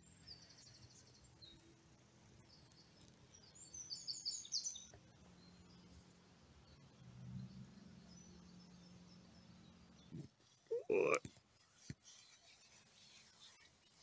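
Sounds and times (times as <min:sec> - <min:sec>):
birds chirping: 0:02.4 - 0:11.2.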